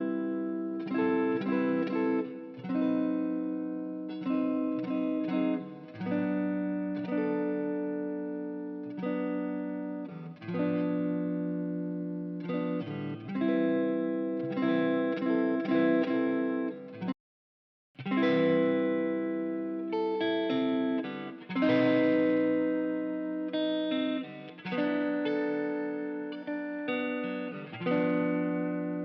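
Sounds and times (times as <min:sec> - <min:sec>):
guitar chords ringing: 0:00.0 - 0:17.1, 0:18.0 - 0:29.0.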